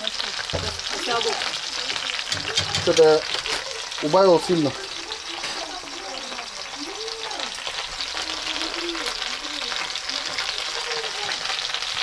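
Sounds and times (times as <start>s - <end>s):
eggplant sizzling in oil: 0.0s - 12.0s.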